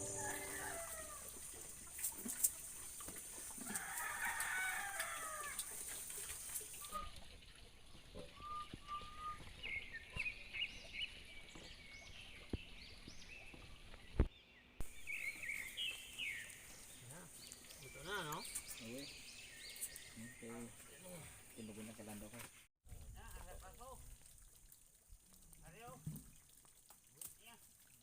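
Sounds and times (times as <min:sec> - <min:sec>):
rooster crowing: 0:00.0 - 0:01.3, 0:03.6 - 0:05.6.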